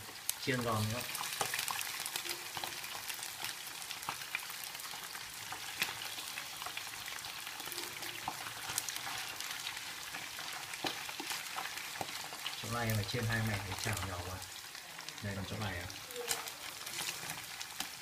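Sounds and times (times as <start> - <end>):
frogs deep-frying in hot oil: 0.0 - 18.0
crackles and pops of oil: 1.1 - 6.8, 7.6 - 14.0, 16.2 - 18.0.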